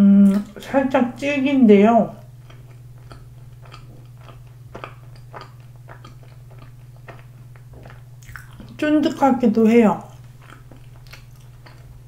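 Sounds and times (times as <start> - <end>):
faint low hum: 0.0 - 12.0
person chewing bread: 2.2 - 8.8, 10.0 - 12.0.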